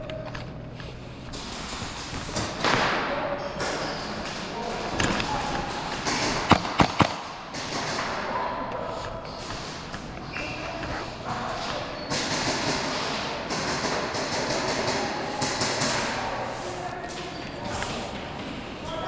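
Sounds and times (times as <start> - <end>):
faint voices: 0.0 - 19.0
hubbub of movement: 0.0 - 19.0
airsoft gun shots: 6.0 - 8.4.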